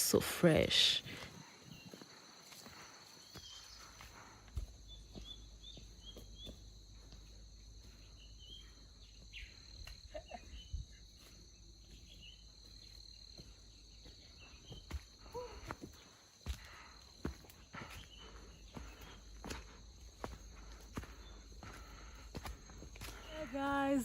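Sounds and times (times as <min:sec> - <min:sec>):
high insect drone: 0:00.0 - 0:24.0
bird chirps: 0:01.5 - 0:07.1, 0:07.8 - 0:13.0.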